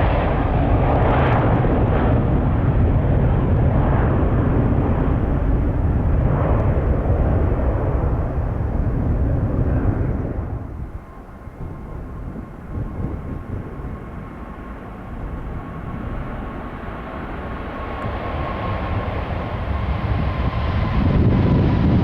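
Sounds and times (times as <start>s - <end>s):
jet airliner engines rumbling: 0.0s - 22.0s.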